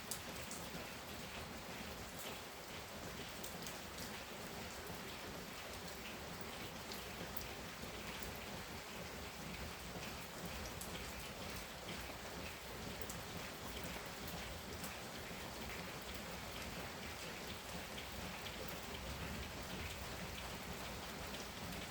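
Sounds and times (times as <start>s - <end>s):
heavy rain pattering: 0.0s - 21.9s.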